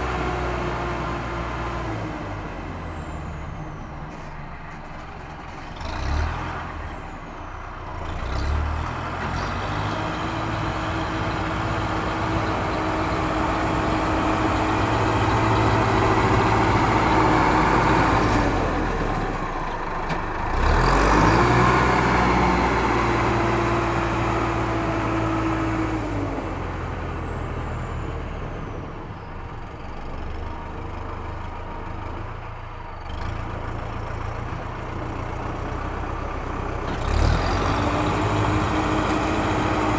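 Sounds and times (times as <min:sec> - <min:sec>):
heavy vehicle engine revving: 0:05.4 - 0:29.0, 0:33.0 - 0:39.9.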